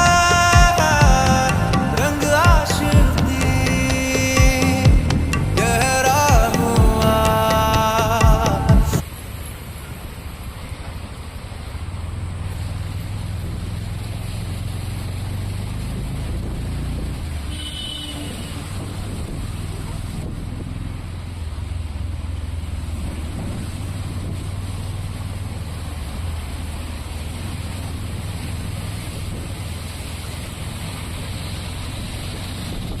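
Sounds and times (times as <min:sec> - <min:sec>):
heavy rain pouring: 0:00.0 - 0:09.0
low steady rumble: 0:00.0 - 0:09.0.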